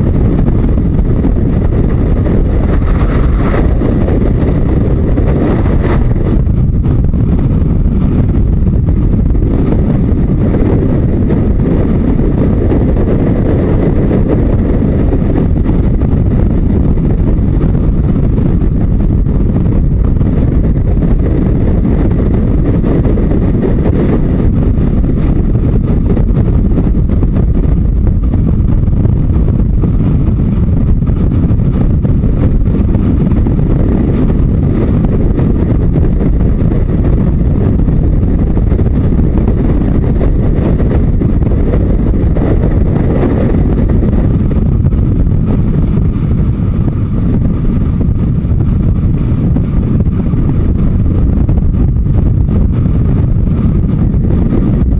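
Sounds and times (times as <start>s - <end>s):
motorcycle engine running: 0.0s - 54.9s
wind rushing over microphone: 0.0s - 54.9s.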